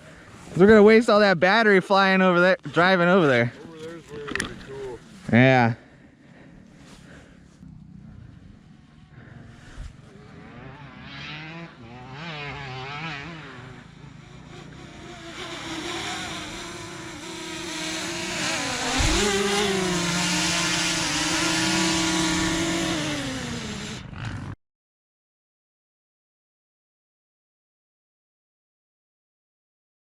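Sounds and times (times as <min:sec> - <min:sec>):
dirt bike engine revving: 0:06.5 - 0:24.6.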